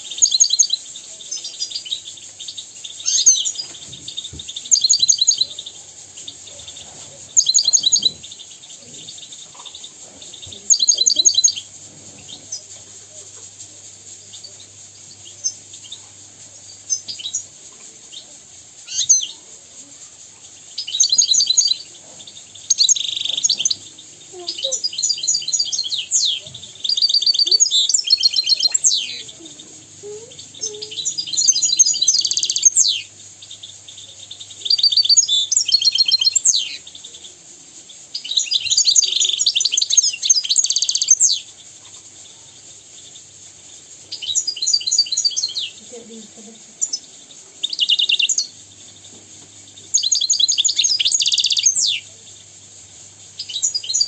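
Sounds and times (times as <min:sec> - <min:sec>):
goldfinch singing trills: 0:00.2 - 0:12.7, 0:20.8 - 0:37.2, 0:44.1 - 0:52.1, 0:53.4 - 0:54.0.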